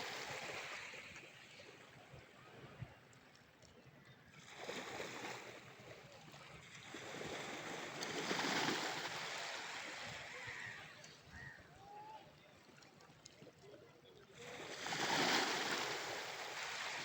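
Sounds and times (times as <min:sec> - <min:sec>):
waves washing on sandy shore: 0:06.6 - 0:11.0, 0:14.4 - 0:17.0.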